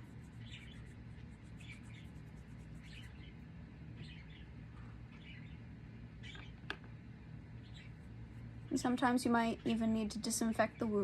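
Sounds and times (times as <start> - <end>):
parakeet chirping: 0.0 - 6.6, 7.6 - 8.0
faint low hum: 0.0 - 11.0.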